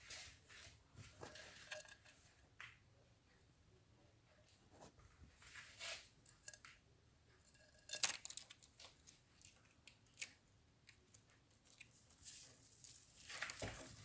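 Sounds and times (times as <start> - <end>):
bird clicking and rustling in nest: 7.5 - 14.0.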